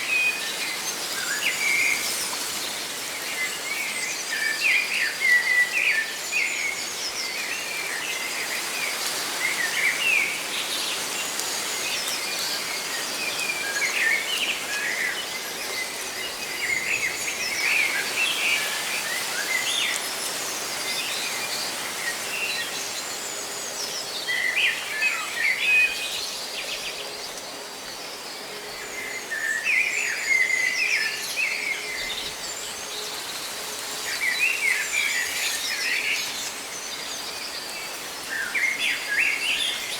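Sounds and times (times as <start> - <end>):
leaves rustling in wind: 0.0 - 39.9.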